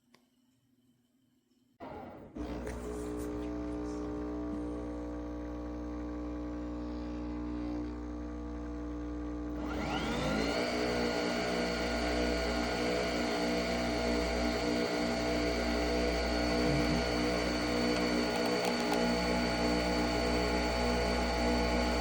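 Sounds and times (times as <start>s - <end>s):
coffee machine motor hum: 1.8s - 22.0s
rising motor whine: 9.5s - 22.0s.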